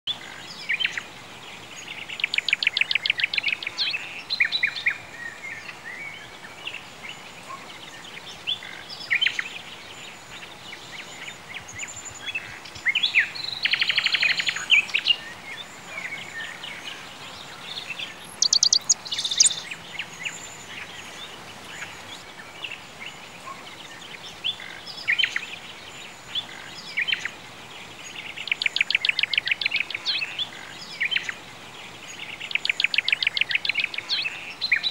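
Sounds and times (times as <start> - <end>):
background hiss: 0.1 - 34.9
birds chirping: 0.1 - 34.9
fast bird trill: 18.3 - 19.7.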